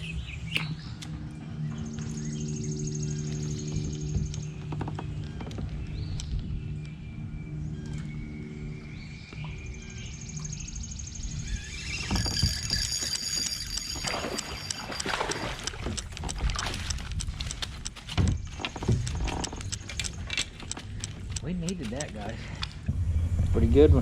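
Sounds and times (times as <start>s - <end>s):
fishing reel clicking: 11.8s - 18.0s
water splashes: 13.9s - 18.1s.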